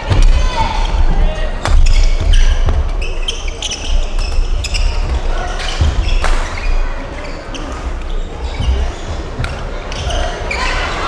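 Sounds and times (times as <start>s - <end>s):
footstep thuds: 0.0s - 7.2s
racket hitting shuttlecock: 1.6s - 10.3s.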